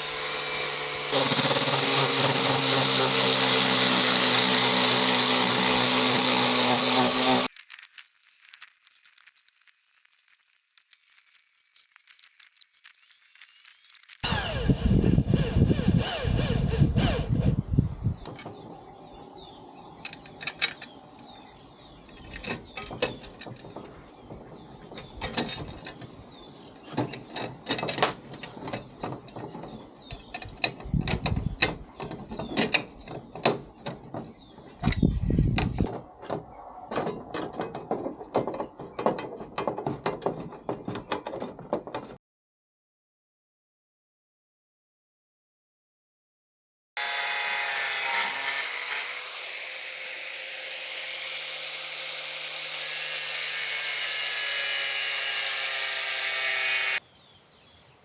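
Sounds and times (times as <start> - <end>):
hand tools clicking on metal: 7.5 - 14.2.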